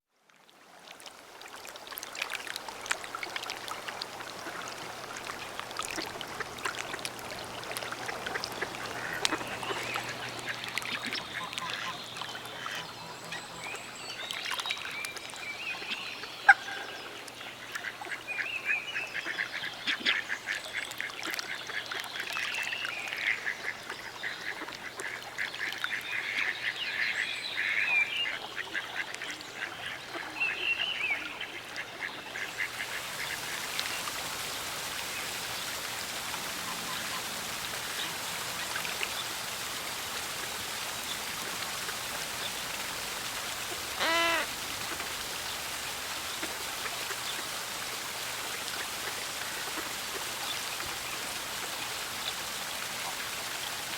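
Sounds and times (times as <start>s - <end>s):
flock of waterfowl calling: 3.1s - 13.9s, 26.2s - 47.6s.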